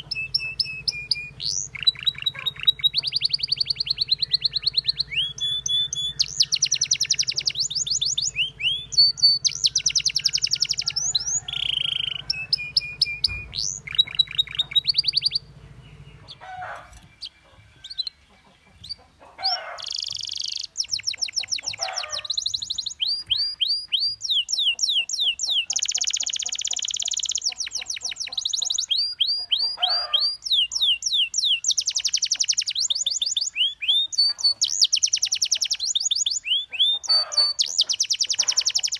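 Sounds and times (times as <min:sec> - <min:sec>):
low hum: 0:00.0 - 0:17.2
canary singing trills: 0:00.0 - 0:38.9
soft bird calls: 0:00.0 - 0:38.9.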